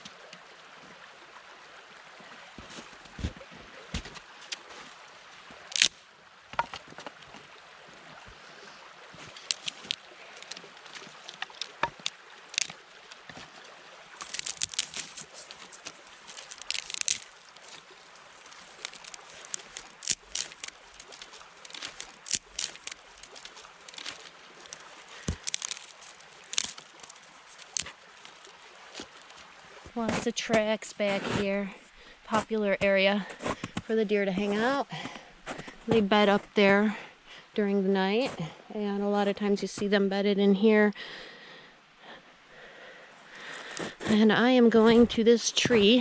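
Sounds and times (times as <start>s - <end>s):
creek running: 0.0s - 46.0s
footsteps crunching through snow: 9.2s - 12.7s, 14.2s - 30.3s.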